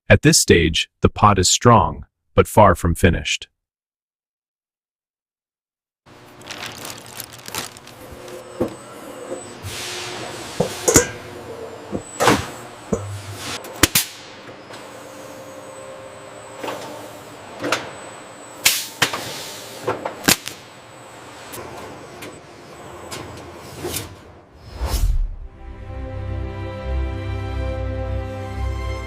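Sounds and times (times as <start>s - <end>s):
whooshing swells: 24.6s - 25.8s.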